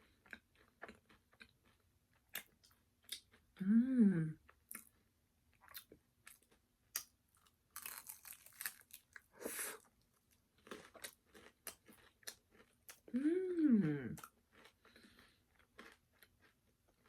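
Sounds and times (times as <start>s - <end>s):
crunching and chewing food: 0.0s - 3.6s, 4.4s - 13.2s, 14.1s - 17.0s.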